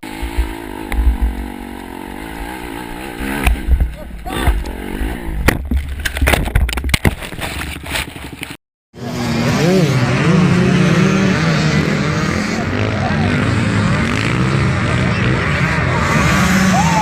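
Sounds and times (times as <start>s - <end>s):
motorcycle engine under load: 0.0s - 8.6s
rough rumble: 0.0s - 16.8s
sharp knocks and clatter: 5.4s - 8.6s.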